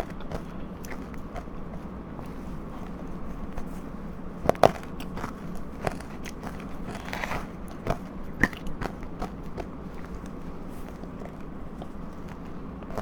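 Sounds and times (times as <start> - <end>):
crunchy ice bites and chewing: 4.4 - 10.4.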